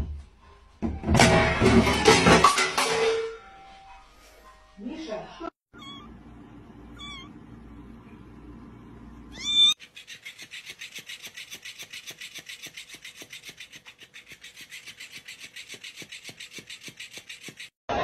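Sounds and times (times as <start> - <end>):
cat meowing: 5.7 - 6.2, 6.9 - 7.4, 9.3 - 9.8
steady rasping or rubbing: 9.8 - 17.8.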